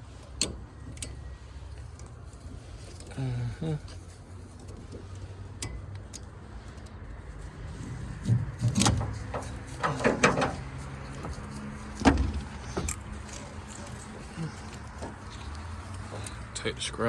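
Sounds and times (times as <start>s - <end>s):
knocks and clatters: 7.7s - 16.6s.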